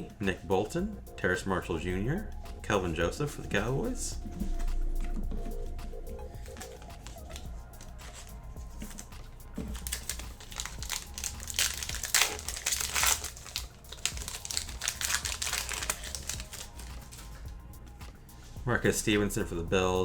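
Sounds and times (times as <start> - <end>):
wrapper tearing and crinkling: 8.9 - 17.4.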